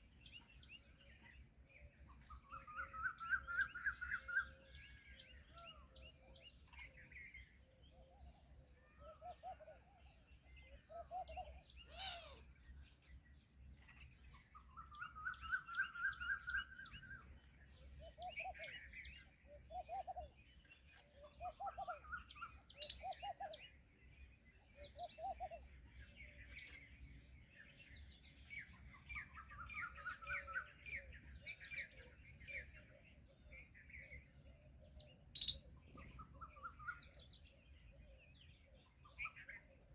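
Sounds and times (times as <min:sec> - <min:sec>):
birds chirping and calling: 0:14.1 - 0:23.8, 0:24.6 - 0:39.9.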